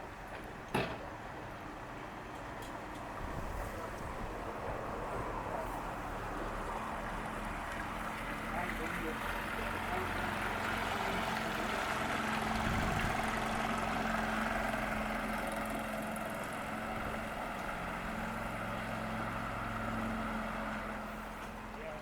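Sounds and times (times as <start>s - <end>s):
motorboat engine running: 9.6s - 15.0s.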